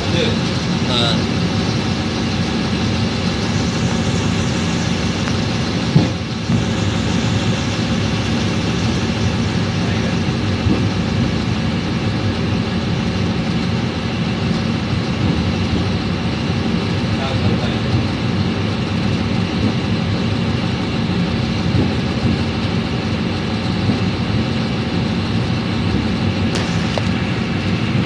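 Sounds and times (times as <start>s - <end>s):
train running on track: 0.0s - 28.0s.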